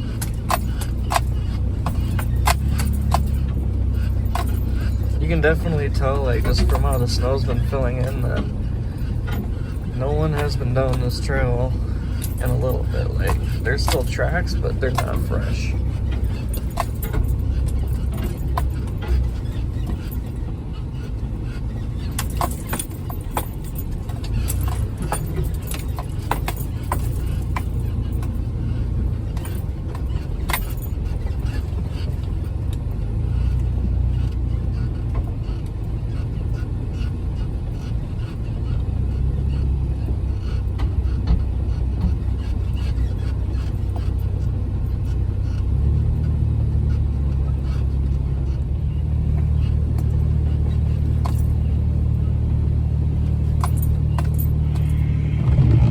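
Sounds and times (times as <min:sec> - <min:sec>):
sharp clicks and knocks: 0:00.0 - 0:20.4
car engine running: 0:00.0 - 0:55.9.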